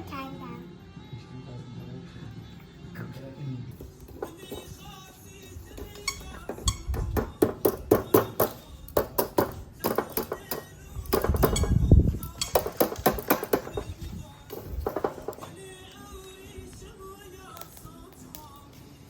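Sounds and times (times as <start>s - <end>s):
background music: 0.0s - 19.0s
sharp knocks and clinks: 5.8s - 15.5s.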